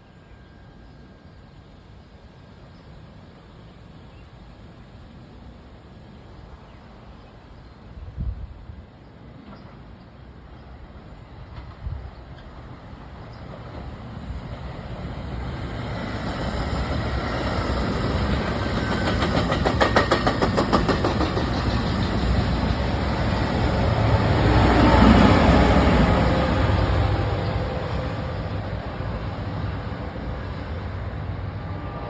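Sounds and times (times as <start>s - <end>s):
train passing rumble: 0.0s - 32.0s
train wheels clattering: 16.2s - 23.8s.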